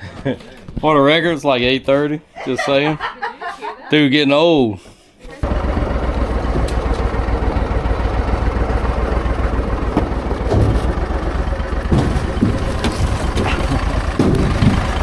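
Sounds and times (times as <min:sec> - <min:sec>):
engine rumbling: 0:05.4 - 0:15.0.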